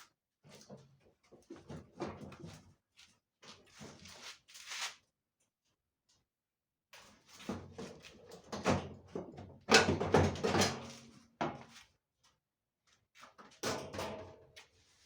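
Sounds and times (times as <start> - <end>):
dryer parts knocking and clattering: 7.5 - 11.6.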